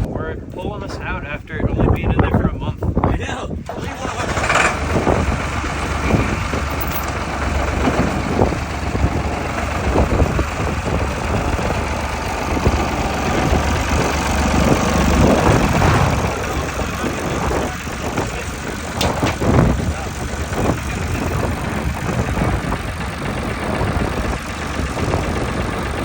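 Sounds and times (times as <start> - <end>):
car engine idling: 3.7 - 26.0.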